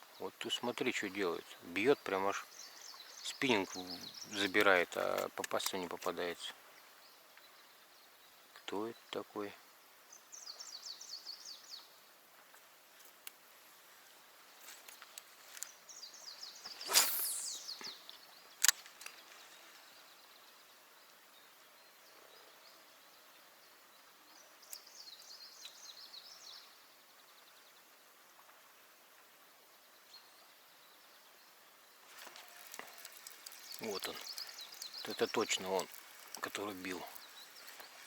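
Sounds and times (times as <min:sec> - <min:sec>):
fishing rod whoosh: 0:16.7 - 0:17.7
sharp click: 0:18.6 - 0:19.2.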